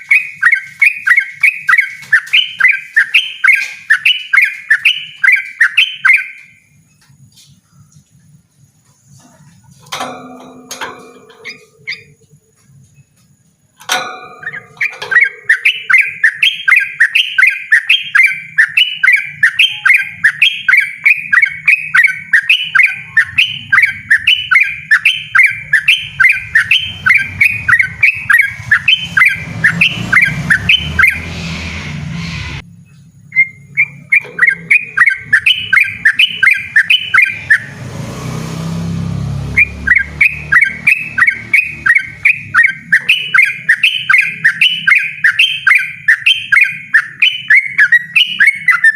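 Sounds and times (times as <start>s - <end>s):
bird chirping: 0.0s - 48.9s
low rumble: 25.7s - 33.7s.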